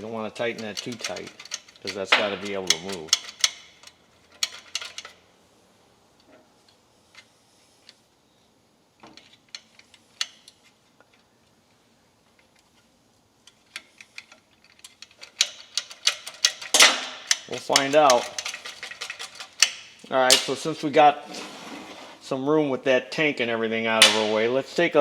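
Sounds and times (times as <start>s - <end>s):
metallic clicks of hand tools: 0.0s - 5.2s, 9.0s - 11.3s, 13.4s - 20.6s.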